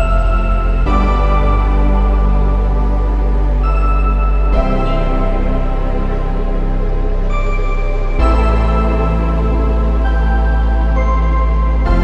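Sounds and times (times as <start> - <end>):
deep bass drone: 0.0 - 12.0
synth chords: 0.0 - 12.0.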